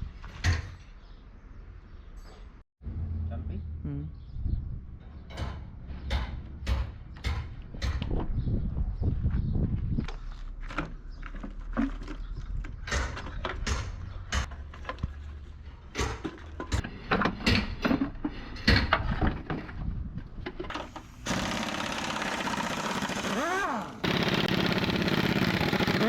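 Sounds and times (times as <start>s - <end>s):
knocks and clanks on metal: 5.0s - 8.2s, 15.9s - 19.8s.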